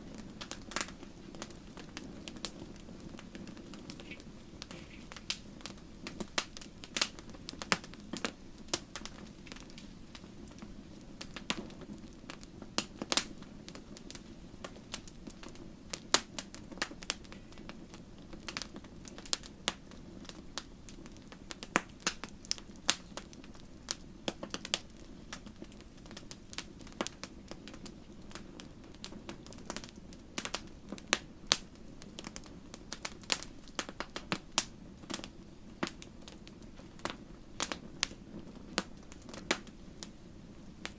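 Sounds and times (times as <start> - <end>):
campfire crackling: 0.0 - 40.9.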